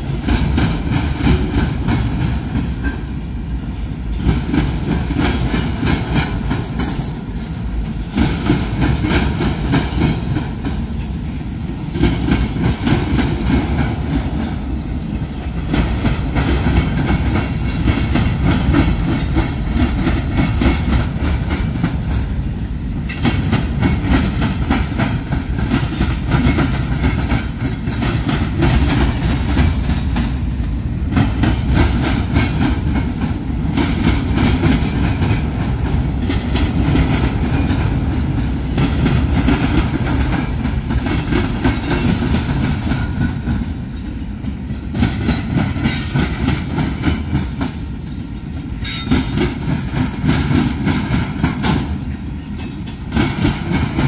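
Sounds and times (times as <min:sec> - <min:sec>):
train cars rumbling past: 0:00.0 - 0:54.0
wheels clicking over rail joints: 0:00.0 - 0:54.0.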